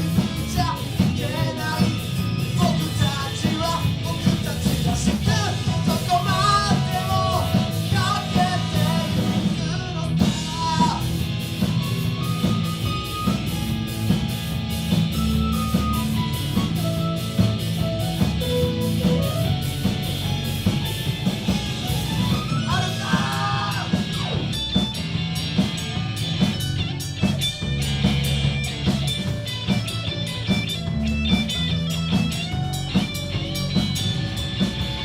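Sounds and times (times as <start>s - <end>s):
live rock band playing: 0.0s - 35.0s.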